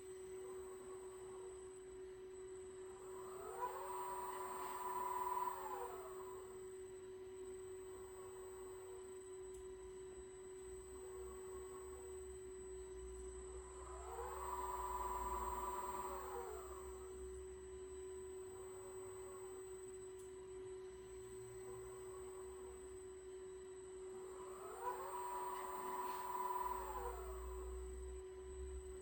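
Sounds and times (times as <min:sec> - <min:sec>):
steady low hum: 0:00.0 - 0:29.0
servo motors whining: 0:13.8 - 0:17.1, 0:24.1 - 0:28.6.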